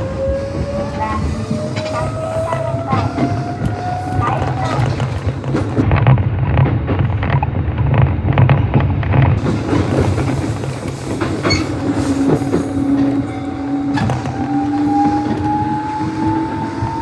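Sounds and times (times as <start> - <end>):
wheels clattering over rail joints: 0.0 - 17.0
train motor whine rising: 10.6 - 17.0.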